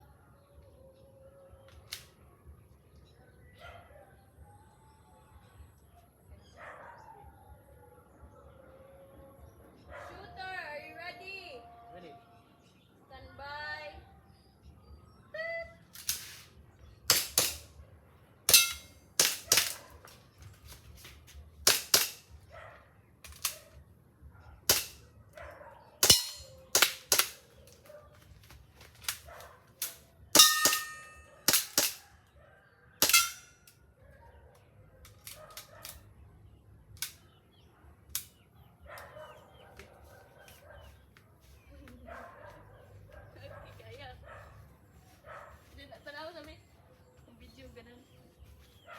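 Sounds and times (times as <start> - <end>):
airsoft gun shots: 17.1 - 17.7, 18.5 - 19.9, 21.6 - 22.3, 24.7 - 25.0, 26.0 - 27.5, 29.8 - 32.0, 33.0 - 33.5.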